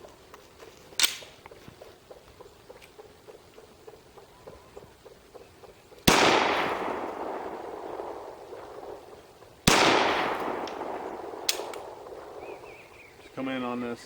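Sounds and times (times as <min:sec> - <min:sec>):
pistol shots with echo: 0:06.0 - 0:13.2.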